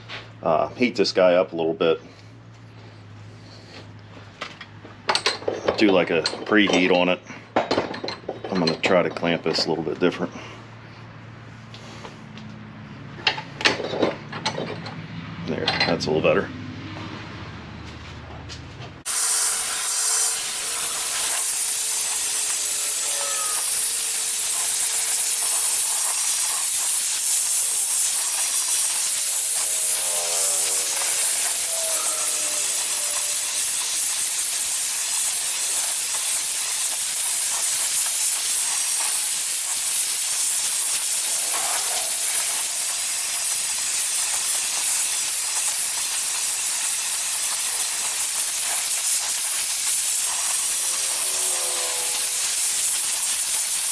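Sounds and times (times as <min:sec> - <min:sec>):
gas torch flame hissing: 0:19.0 - 0:53.9.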